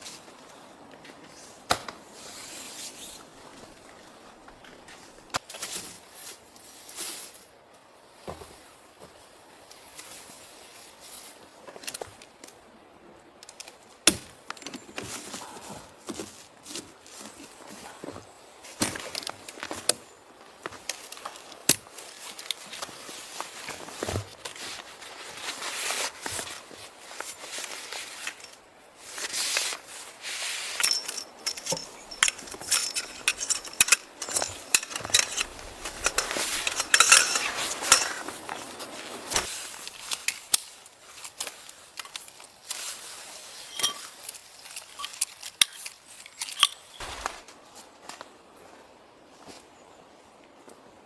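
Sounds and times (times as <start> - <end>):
handling clicks and clinks: 27.2 - 28.6, 30.7 - 40.7, 43.7 - 47.0.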